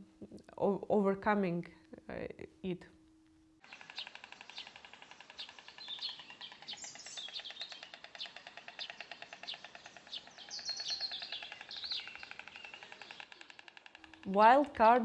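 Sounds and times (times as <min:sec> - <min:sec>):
birds chirping: 0:03.6 - 0:15.0.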